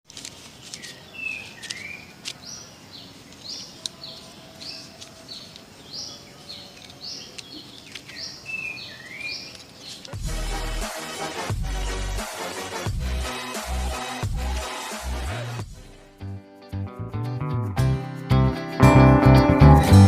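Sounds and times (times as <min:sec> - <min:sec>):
small bird chirping: 0:00.5 - 0:10.1
music with heavy bass: 0:10.2 - 0:20.0.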